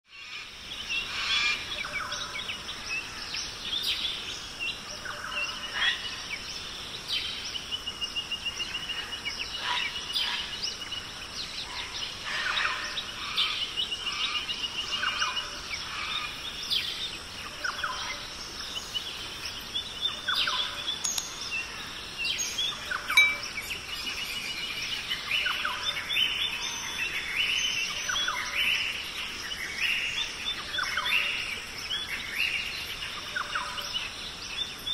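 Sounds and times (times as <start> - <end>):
birds chirping and singing: 0.1 - 34.9
steady hiss: 0.2 - 34.9
bird trills: 20.1 - 24.5.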